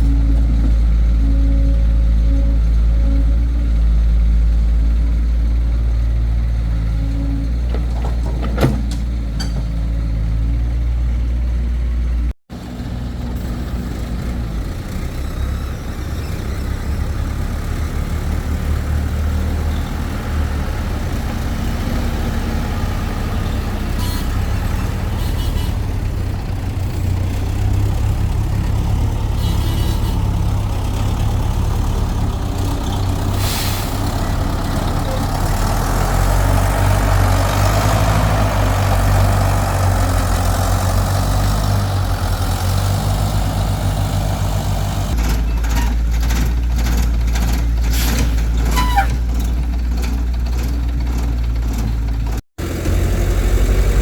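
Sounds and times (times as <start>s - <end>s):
heavy diesel engine running: 0.0s - 54.0s
metal clank: 7.6s - 10.0s.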